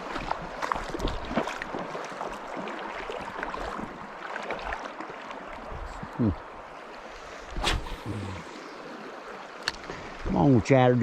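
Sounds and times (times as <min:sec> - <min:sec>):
river water over rocks: 0:00.0 - 0:11.0
loud falling whoosh: 0:07.6 - 0:08.6.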